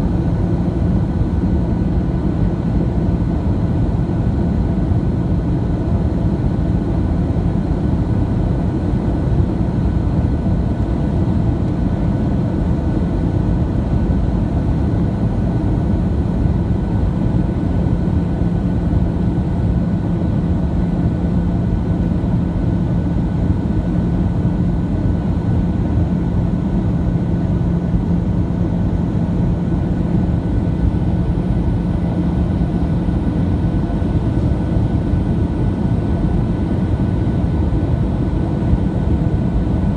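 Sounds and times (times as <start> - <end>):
airplane cabin engine rumble: 0.0 - 39.9
steady hum: 18.7 - 39.9.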